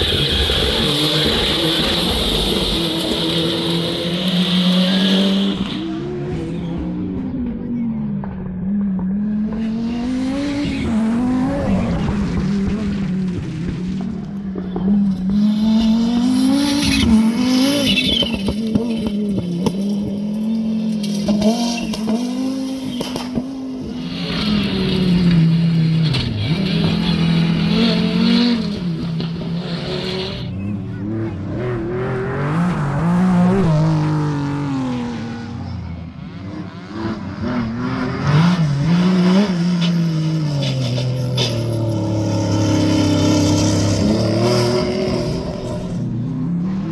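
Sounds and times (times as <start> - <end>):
tyre squeal: 0.0 - 5.9, 15.3 - 31.0, 39.0 - 46.0
rally car engines at full throttle: 0.0 - 46.9.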